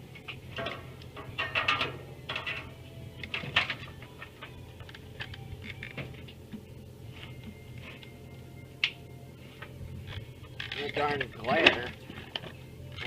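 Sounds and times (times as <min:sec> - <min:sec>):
steady low hum: 0:00.0 - 0:13.0
metal clinking and tapping: 0:00.2 - 0:06.7.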